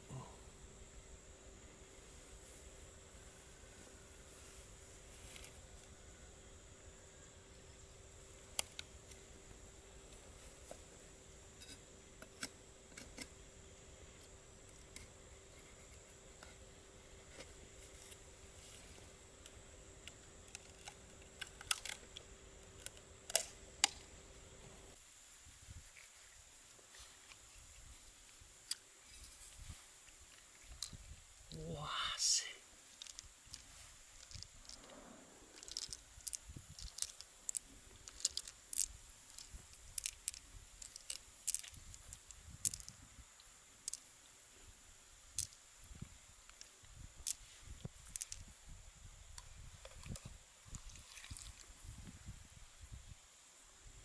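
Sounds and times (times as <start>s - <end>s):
faint steady hum: 0.0s - 54.0s
clam shells clicking: 19.4s - 24.1s, 33.0s - 33.6s, 35.5s - 43.0s, 43.8s - 44.0s, 48.0s - 48.5s.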